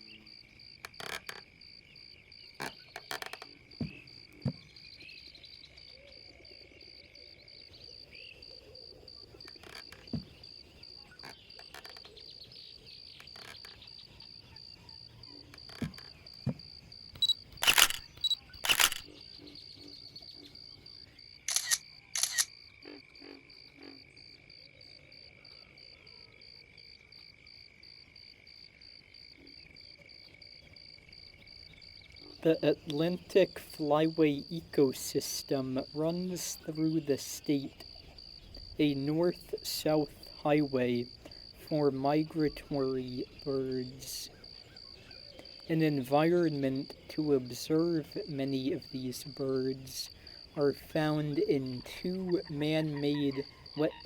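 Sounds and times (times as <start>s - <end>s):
crickets chirping: 0.0s - 54.0s
insects trilling: 0.0s - 54.0s
lower continuous insect trill: 0.0s - 54.0s
sharp clicks: 17.2s - 19.0s, 21.5s - 22.5s.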